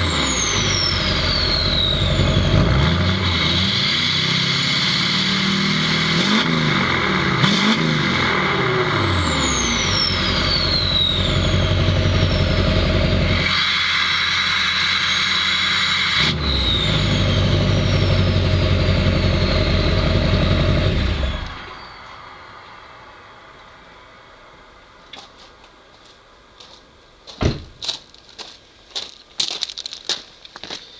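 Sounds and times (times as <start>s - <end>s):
high turbo whistle: 0.0s - 6.0s, 9.1s - 22.6s
diesel engine revving: 0.0s - 22.3s.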